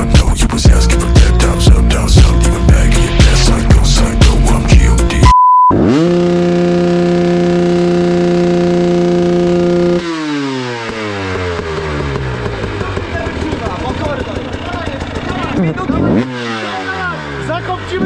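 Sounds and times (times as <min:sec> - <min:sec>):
rap music: 0:00.0 - 0:05.4
dirt bike engine revving: 0:00.0 - 0:18.0
short high beep: 0:05.2 - 0:05.8.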